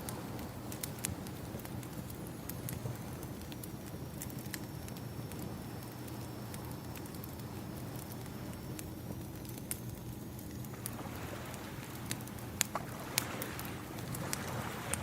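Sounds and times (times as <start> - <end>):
wood fire crackling: 0.0 - 15.0
ocean waves: 11.0 - 12.0, 12.7 - 15.0.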